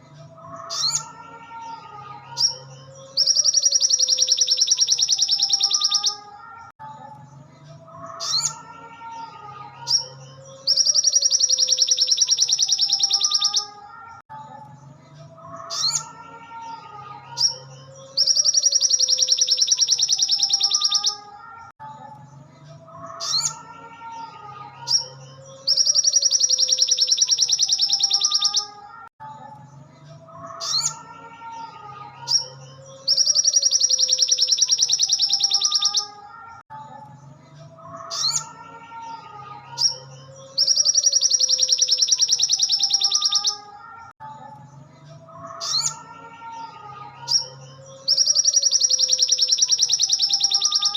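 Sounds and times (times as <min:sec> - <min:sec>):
songbird trilling and chirping: 0:00.5 - 0:01.7, 0:02.3 - 0:06.4, 0:08.0 - 0:08.7, 0:09.8 - 0:13.8, 0:15.5 - 0:16.2, 0:17.3 - 0:21.4, 0:23.0 - 0:23.7, 0:24.8 - 0:28.8, 0:30.4 - 0:31.1, 0:32.3 - 0:36.3, 0:37.8 - 0:38.6, 0:39.7 - 0:43.7, 0:45.4 - 0:46.0, 0:47.3 - 0:50.9.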